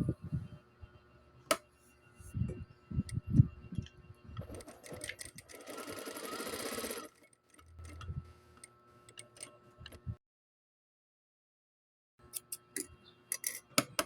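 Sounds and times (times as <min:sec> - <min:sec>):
sewing machine stitching: 0:04.4 - 0:08.0.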